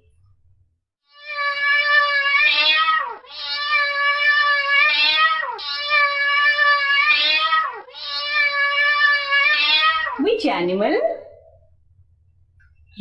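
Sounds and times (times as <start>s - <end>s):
cat meowing: 1.1s - 10.2s.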